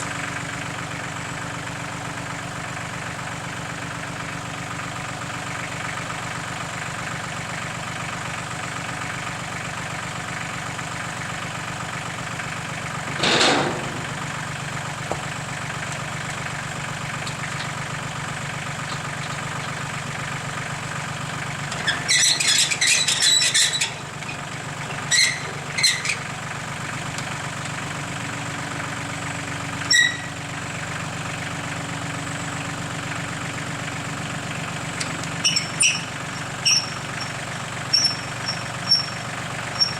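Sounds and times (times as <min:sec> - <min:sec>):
tractor engine idling: 0:00.0 - 0:39.9
high metallic squealing: 0:21.8 - 0:24.0, 0:25.0 - 0:26.2, 0:29.9 - 0:30.3, 0:35.4 - 0:39.9.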